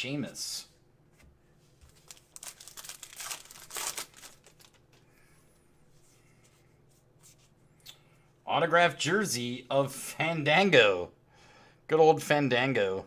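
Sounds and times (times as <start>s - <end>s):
packaging crinkling and tearing: 1.8s - 5.0s.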